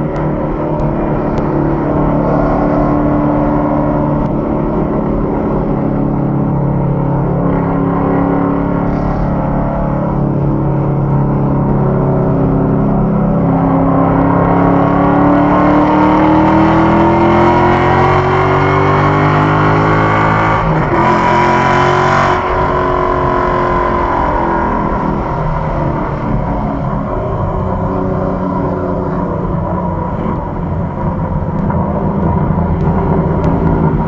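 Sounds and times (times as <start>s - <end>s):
car engine accelerating: 0.0s - 34.0s.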